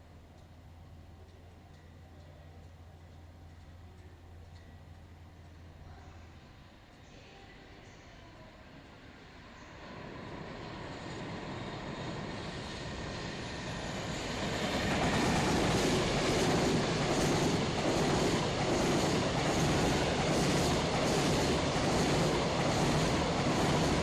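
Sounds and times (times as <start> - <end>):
freight train rumble: 0.0 - 24.0
train wheel clatter: 14.7 - 24.0.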